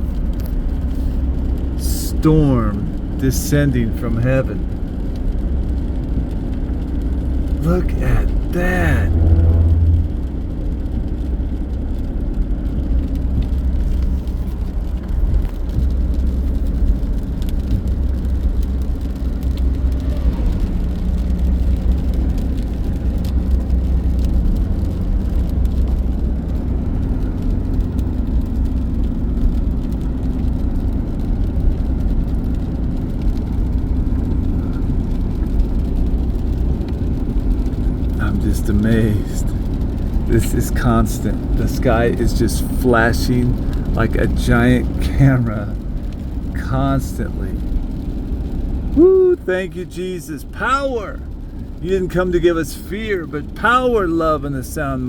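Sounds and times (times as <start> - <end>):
car road and engine drone: 0.0 - 55.0.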